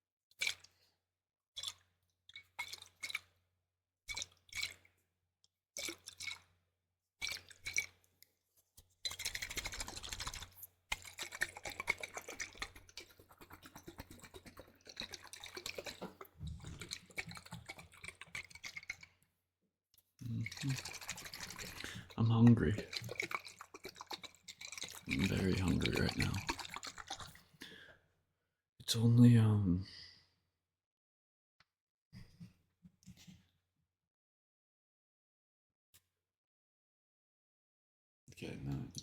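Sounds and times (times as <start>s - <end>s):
wet squishes: 0.3s - 0.9s, 1.6s - 3.4s, 4.1s - 5.0s, 5.8s - 6.6s, 7.2s - 8.1s, 8.9s - 19.2s, 20.2s - 27.6s
crackling bubbling liquid: 9.1s - 19.2s, 20.2s - 27.4s.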